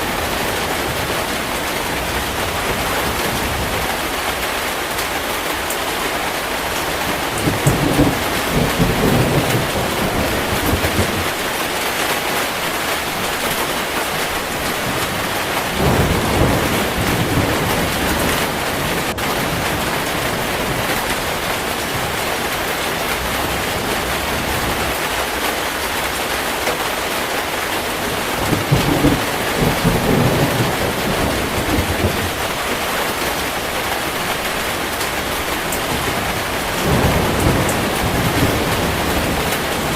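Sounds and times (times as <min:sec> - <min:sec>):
heavy rain: 0:00.0 - 0:39.9
thunder rumbling: 0:06.6 - 0:25.4, 0:27.8 - 0:39.9.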